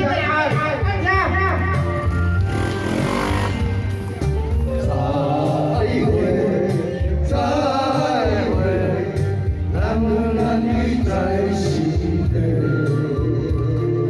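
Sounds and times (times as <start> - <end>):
backing music: 1.5 - 6.8
man singing: 4.8 - 14.0.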